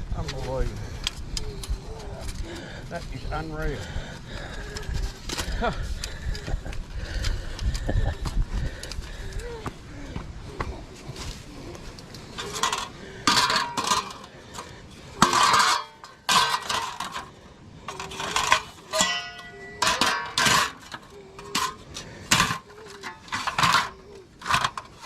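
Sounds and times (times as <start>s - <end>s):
metal cookware clattering: 15.2s - 17.2s, 18.0s - 20.9s.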